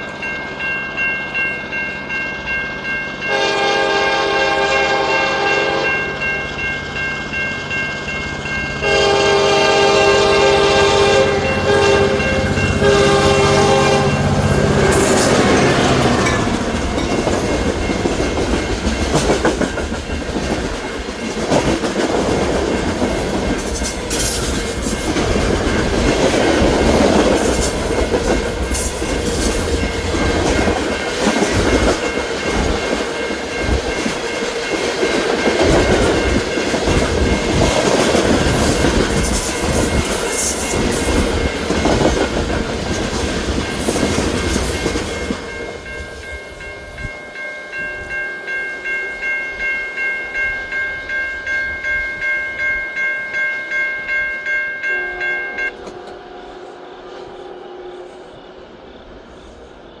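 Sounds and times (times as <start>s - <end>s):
train cars rolling past: 0.0s - 60.0s
wheels clacking over rail joints: 8.4s - 45.9s
pulsing ringing tone: 43.7s - 55.8s.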